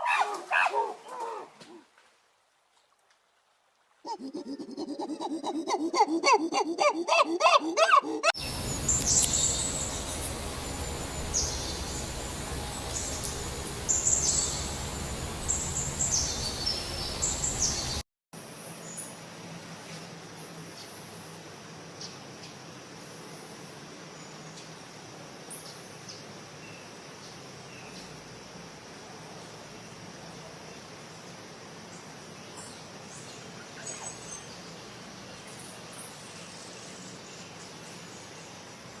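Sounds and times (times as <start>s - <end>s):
outdoor background noise: 0.0s - 39.0s
low background rumble: 8.4s - 18.0s
small birds chirping: 8.4s - 18.0s.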